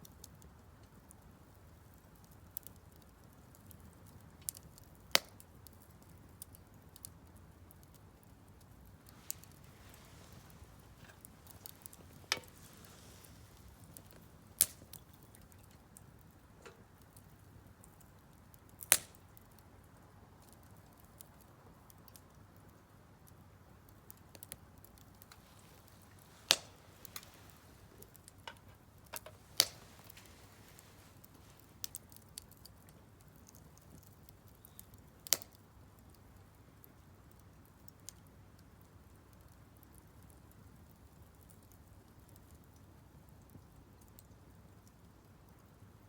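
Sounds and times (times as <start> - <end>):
faint steady hiss: 0.0 - 46.0
firewood crackling: 0.0 - 46.0
loud fire pops: 9.1 - 15.1, 18.8 - 19.3, 25.2 - 28.4, 29.1 - 32.0.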